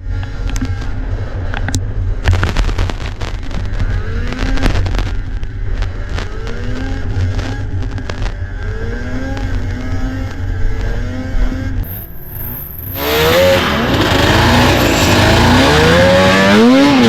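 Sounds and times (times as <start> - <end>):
snowmobile engine revving: 10.9 - 17.0.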